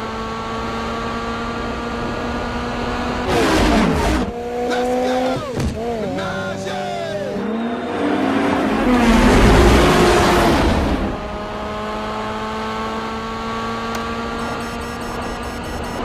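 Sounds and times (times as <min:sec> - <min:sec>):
racing engine at high revs: 0:00.0 - 0:16.0
race car passing by: 0:03.6 - 0:11.4.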